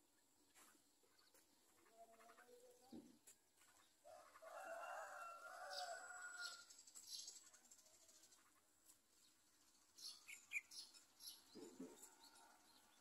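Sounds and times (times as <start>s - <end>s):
faint bird chirps: 0.0s - 4.7s.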